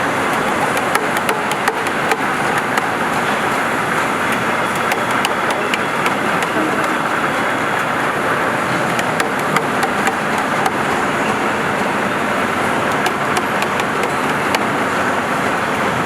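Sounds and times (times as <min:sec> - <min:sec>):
lathe machining noise: 0:00.0 - 0:16.0
sharp ticks: 0:00.3 - 0:07.3, 0:09.0 - 0:11.0, 0:12.8 - 0:14.8.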